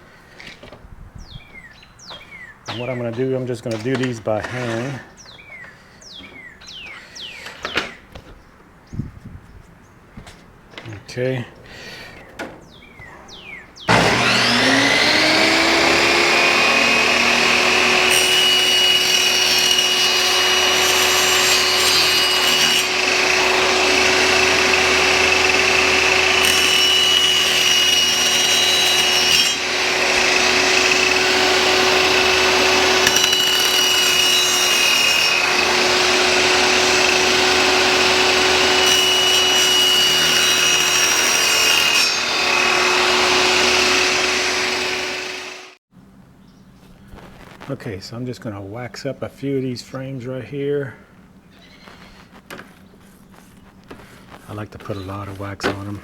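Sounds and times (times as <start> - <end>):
power tool cutting wood: 3.7 - 5.1, 13.9 - 45.8
power tool motor running: 13.9 - 45.8.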